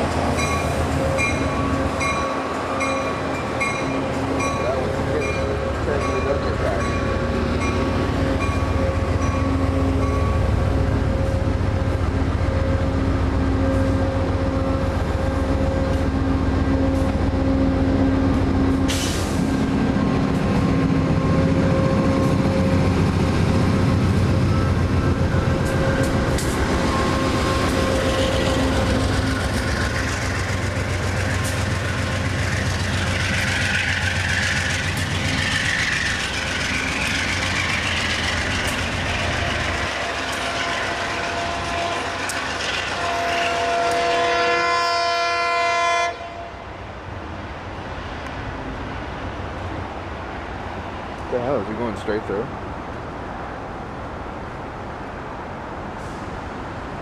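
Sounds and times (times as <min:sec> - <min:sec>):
train wheels rumbling on rails: 0:00.0 - 0:45.5.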